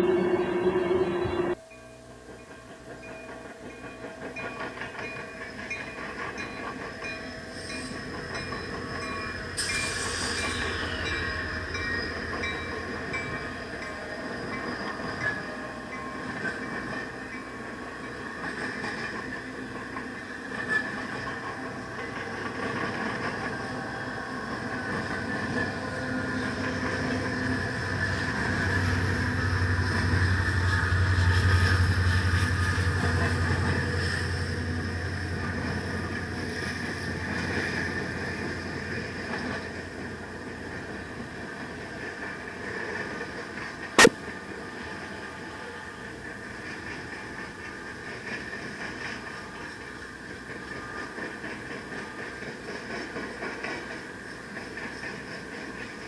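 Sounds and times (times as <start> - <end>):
train rail cars rumbling: 0.0 - 56.0
high-pitched hissing noise: 7.2 - 12.4.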